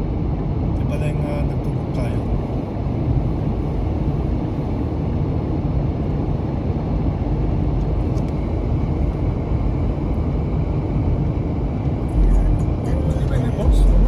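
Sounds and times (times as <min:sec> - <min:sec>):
car interior driving rumble: 0:07.4 - 0:14.0.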